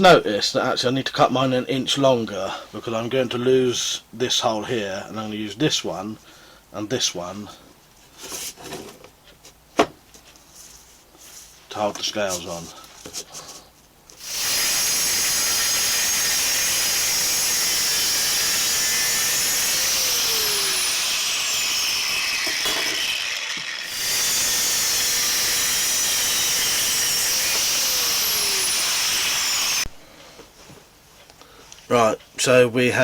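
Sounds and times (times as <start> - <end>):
power tool grinding steel blade: 14.2 - 29.9.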